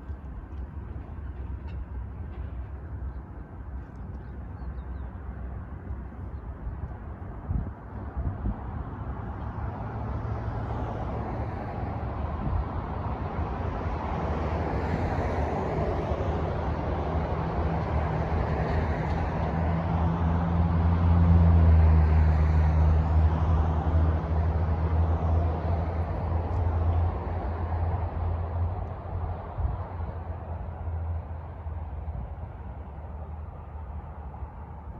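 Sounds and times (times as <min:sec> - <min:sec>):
vehicle passing with low hum: 0:07.2 - 0:34.9.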